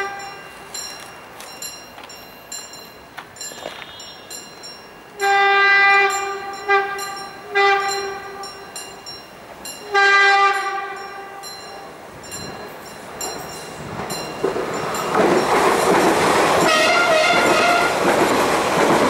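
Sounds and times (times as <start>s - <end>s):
train horn blasts: 0.0s - 0.6s, 5.2s - 8.6s, 9.8s - 11.5s, 16.6s - 18.0s.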